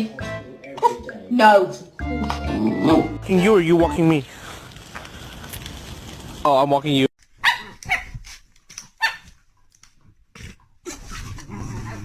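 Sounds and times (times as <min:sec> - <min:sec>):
dog barking: 0:07.4 - 0:08.1, 0:09.0 - 0:09.3.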